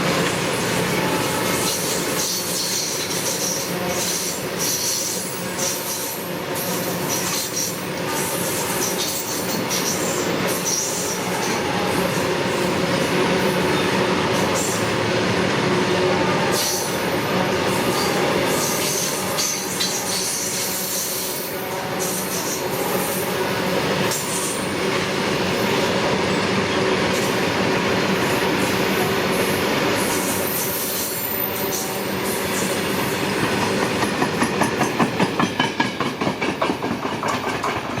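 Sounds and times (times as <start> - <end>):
wheels clattering over rail joints: 33.6 - 38.0.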